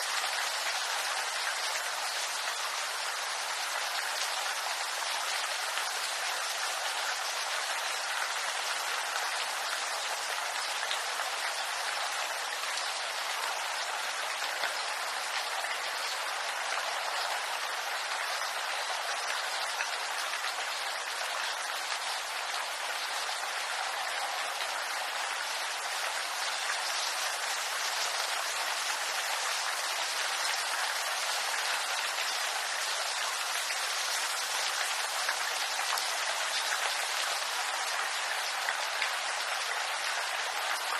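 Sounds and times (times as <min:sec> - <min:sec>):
rain on leaves: 0:00.0 - 0:40.9.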